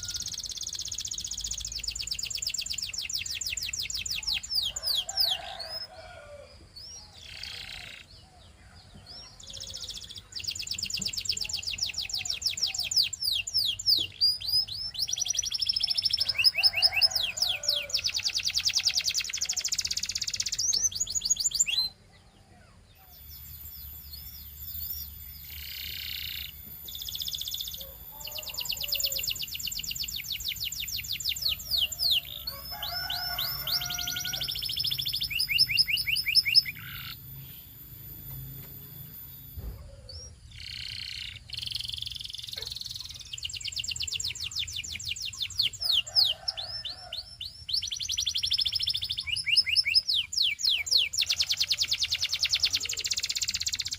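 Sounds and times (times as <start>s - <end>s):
canary singing fast trills: 0.0s - 53.9s.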